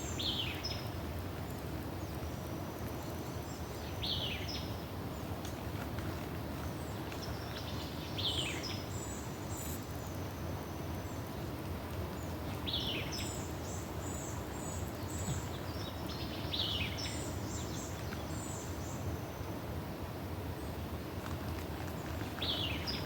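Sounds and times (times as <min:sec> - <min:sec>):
songbirds singing: 0:00.0 - 0:11.4, 0:12.0 - 0:19.6, 0:20.5 - 0:23.0.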